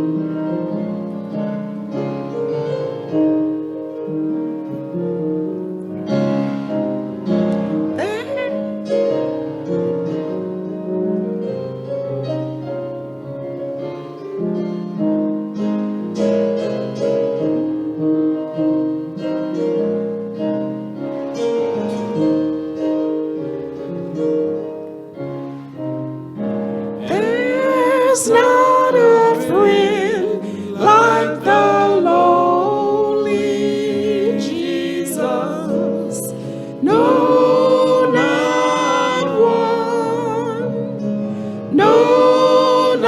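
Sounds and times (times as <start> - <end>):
piano playing slow chords: 0.0 - 43.0.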